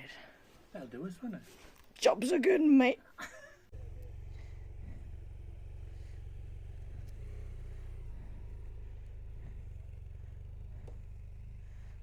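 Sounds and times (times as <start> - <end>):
motorcycle engine idling: 3.7 - 12.0.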